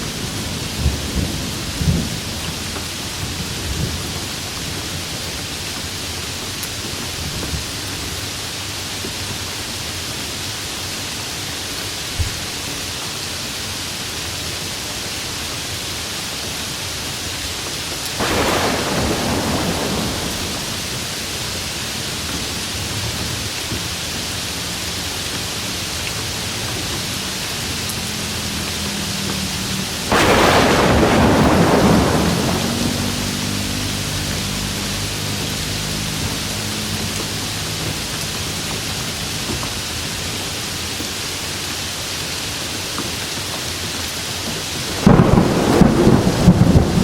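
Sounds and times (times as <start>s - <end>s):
rain hissing: 0.0s - 47.0s
thunder claps rumbling: 18.1s - 21.7s, 29.8s - 34.6s, 44.9s - 47.0s.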